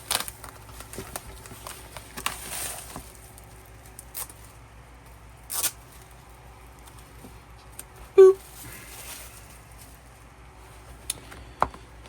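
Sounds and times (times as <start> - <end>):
paper packaging rustling: 0.0 - 7.8.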